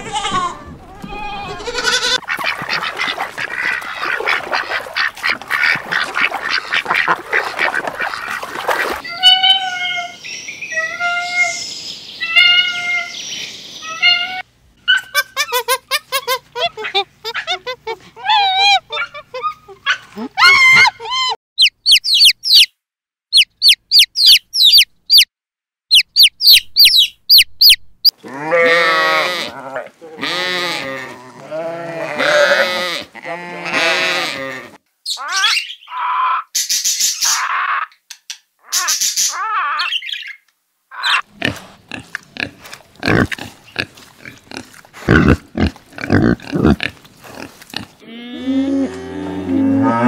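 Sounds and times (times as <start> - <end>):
sheep bleating: 0.0 - 2.2, 28.2 - 34.8
monkeys squeaky calls: 20.4 - 22.7, 35.1 - 36.4
rapid high chirps: 21.6 - 22.7, 23.3 - 25.3
pig grunting: 41.2 - 49.0.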